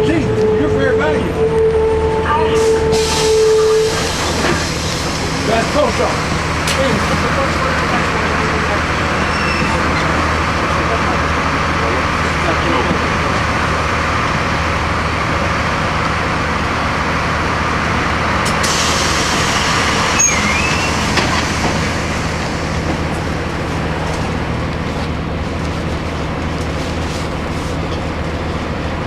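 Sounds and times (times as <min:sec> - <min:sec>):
bus diesel engine running: 0:00.0 - 0:29.0
road noise: 0:00.0 - 0:29.0
short squeal: 0:09.2 - 0:09.9, 0:20.0 - 0:21.4
air hiss: 0:18.5 - 0:22.9.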